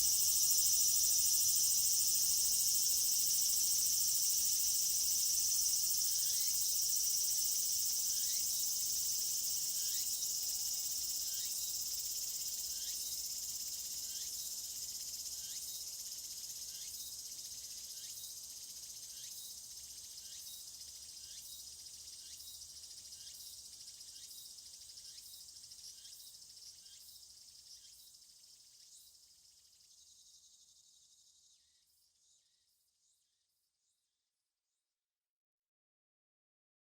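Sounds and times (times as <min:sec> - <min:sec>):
insects buzzing: 0:00.0 - 0:27.0.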